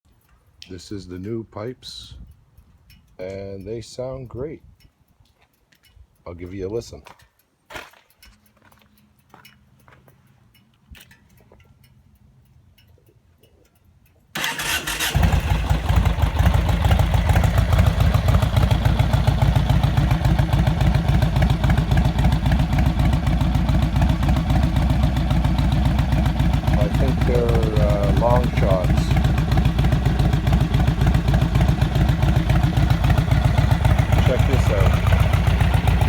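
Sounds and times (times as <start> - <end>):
engine starting and idling: 14.4 - 36.0.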